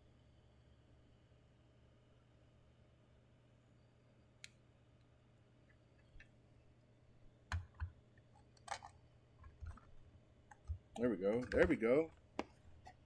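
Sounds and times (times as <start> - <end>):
plastic parts clicking: 8.6 - 9.9, 10.5 - 11.8.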